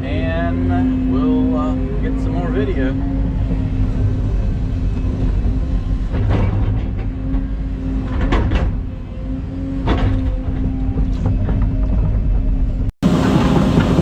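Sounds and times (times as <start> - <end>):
excavator diesel engine humming: 0.0 - 14.0
metallic clanks and knocks: 3.0 - 14.0.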